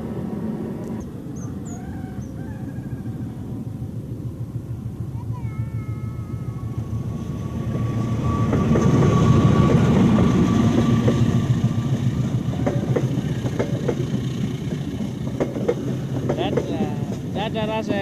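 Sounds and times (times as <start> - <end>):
train rumble passing: 0.0 - 18.0
train wheels clicking on rails: 7.6 - 18.0.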